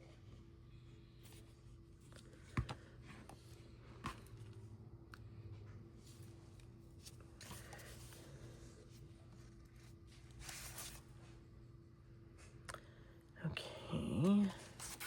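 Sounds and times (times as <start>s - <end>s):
paper rustling: 9.4s - 11.1s.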